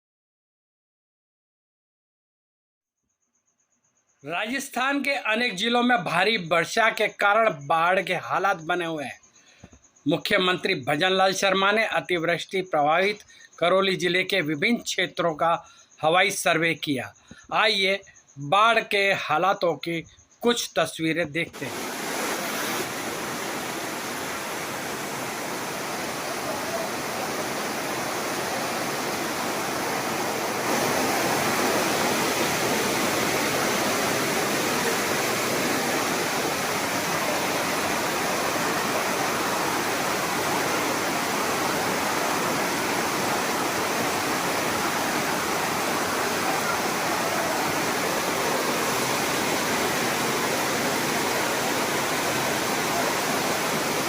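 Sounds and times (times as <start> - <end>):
floodwater rushing: 21.6 - 54.0.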